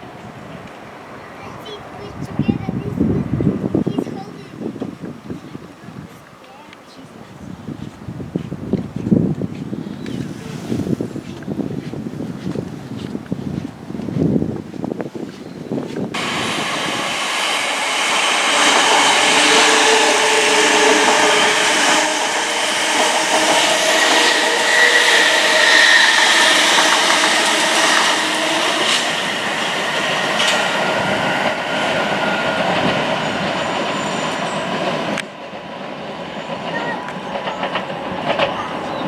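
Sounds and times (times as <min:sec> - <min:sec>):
train wheels clattering on rails: 0:07.8 - 0:39.0.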